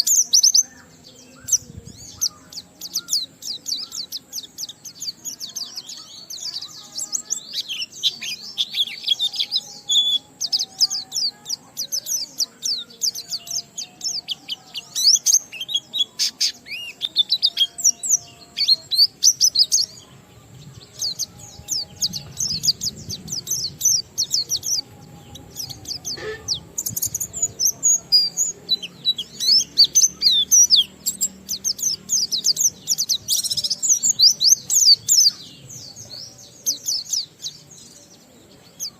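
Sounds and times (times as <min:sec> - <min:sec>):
bird twittering rapidly: 0:21.0 - 0:35.4.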